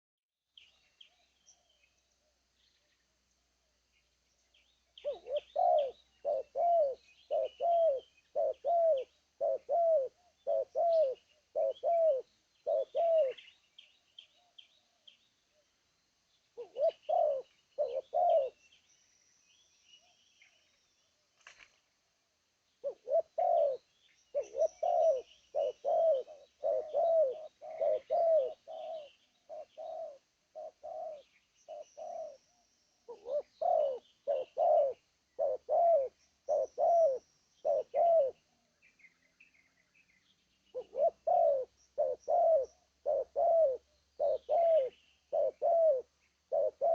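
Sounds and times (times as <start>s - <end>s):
small birds chirping: 0.5s - 21.9s, 22.5s - 46.9s
dove cooing: 5.0s - 13.5s, 16.6s - 18.6s, 22.8s - 32.5s, 33.1s - 38.4s, 40.7s - 46.9s.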